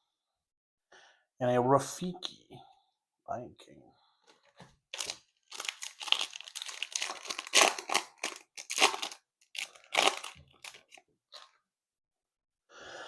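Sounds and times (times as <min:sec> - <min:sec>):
foil wrapper tearing and crinkling: 0:04.9 - 0:11.5.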